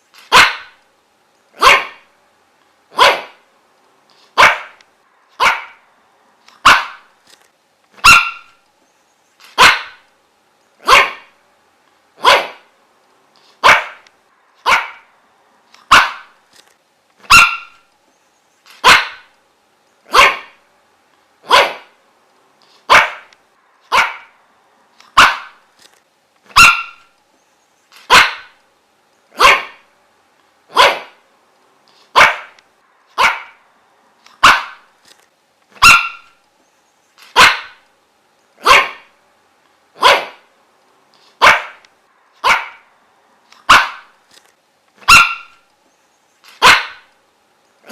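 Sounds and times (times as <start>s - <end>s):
dog barking: 0.3s - 0.8s, 1.6s - 2.1s, 2.9s - 3.4s, 4.4s - 4.8s, 5.4s - 5.8s, 6.6s - 7.1s, 8.0s - 8.6s, 9.6s - 10.0s, 10.8s - 11.4s, 12.2s - 12.7s, 13.6s - 14.0s, 14.6s - 15.1s, 15.9s - 16.4s, 17.3s - 17.8s, 18.8s - 19.3s, 20.1s - 20.6s, 21.4s - 22.0s, 22.9s - 23.3s, 23.9s - 24.4s, 25.1s - 25.6s, 26.5s - 27.1s, 28.1s - 28.6s, 29.4s - 29.9s, 30.7s - 31.2s, 32.1s - 32.6s, 33.2s - 33.6s, 34.4s - 34.9s, 35.8s - 36.4s, 37.3s - 37.8s, 38.6s - 39.1s, 40.0s - 40.5s, 41.4s - 41.8s, 42.4s - 42.9s, 43.6s - 44.1s, 45.0s - 45.6s, 46.6s - 47.1s.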